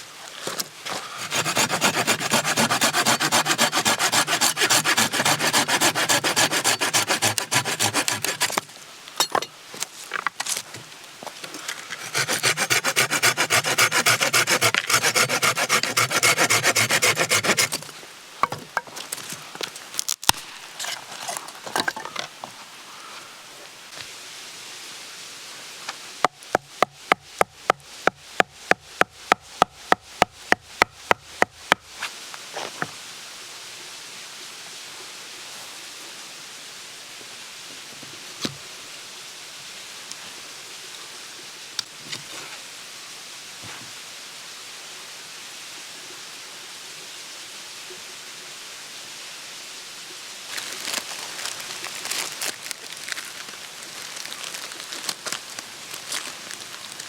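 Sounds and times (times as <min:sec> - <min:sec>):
hand saw cutting firewood: 0:00.9 - 0:08.7, 0:11.9 - 0:17.9, 0:26.5 - 0:31.8.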